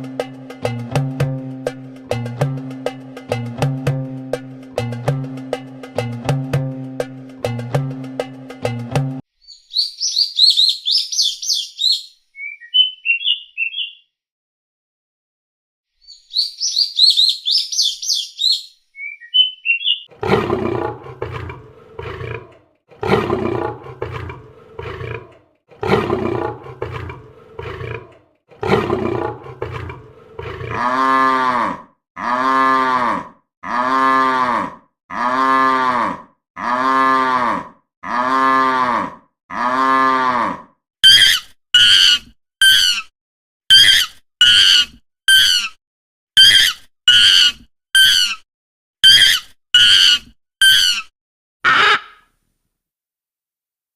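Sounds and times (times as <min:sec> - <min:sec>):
high bird chirp: 0:09.4 - 0:14.1, 0:16.0 - 0:20.1
low rough animal roars: 0:20.1 - 0:40.7
quick high-pitched animal calls: 0:41.0 - 0:43.1, 0:46.4 - 0:48.4, 0:51.7 - 0:52.3.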